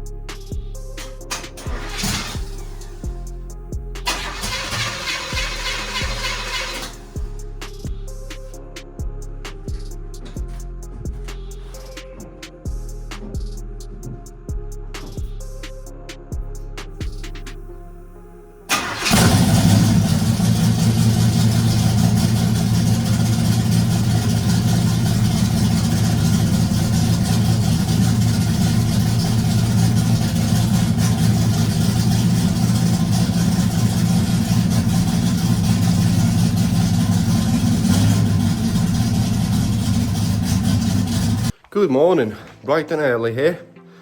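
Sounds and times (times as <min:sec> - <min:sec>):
car engine running: 0:01.0 - 0:07.4, 0:18.7 - 0:41.5.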